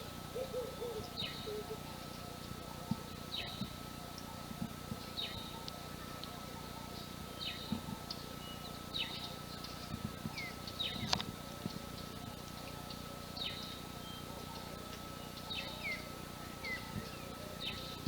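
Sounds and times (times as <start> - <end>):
bird chirps: 12.6 - 18.0.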